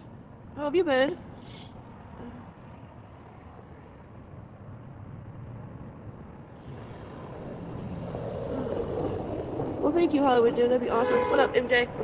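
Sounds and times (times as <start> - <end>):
hiss: 1.4 - 1.8, 6.6 - 9.8
low background rumble: 3.8 - 12.0.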